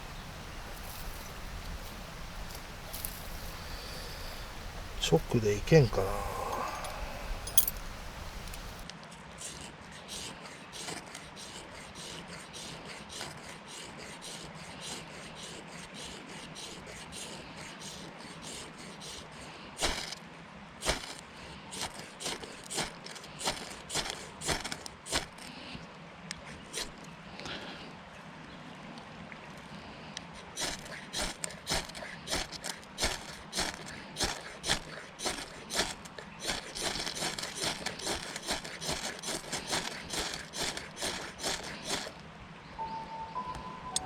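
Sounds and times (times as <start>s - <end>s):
scraping and rubbing strokes: 0.0s - 8.8s, 30.6s - 42.2s.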